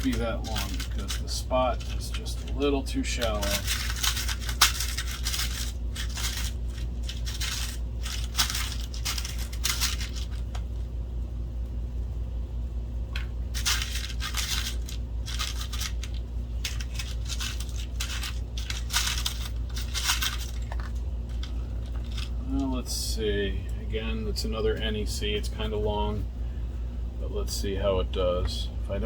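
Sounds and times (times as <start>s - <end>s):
metal screws clinking and rattling: 3.2s - 10.5s, 13.6s - 22.4s.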